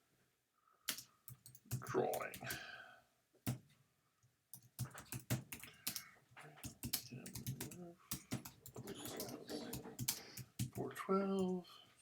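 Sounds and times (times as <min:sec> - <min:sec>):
typing on a keyboard: 0:00.9 - 0:02.8, 0:04.5 - 0:11.5.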